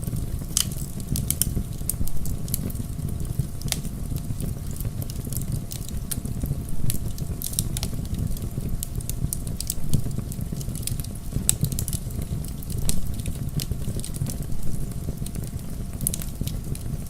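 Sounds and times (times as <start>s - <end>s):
logs crackling and popping: 0.0s - 17.0s
rush of bonfire flames: 0.0s - 17.0s.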